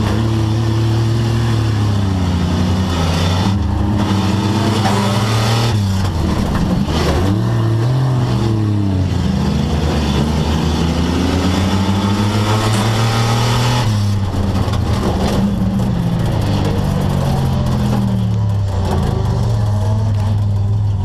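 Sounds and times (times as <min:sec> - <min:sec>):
car engine revving inside cabin: 0:00.0 - 0:21.0.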